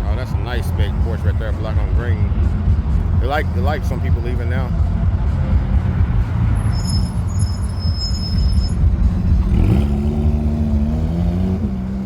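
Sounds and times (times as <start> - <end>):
car engines rumbling: 0.0 - 12.0
car pulling away: 5.4 - 12.0.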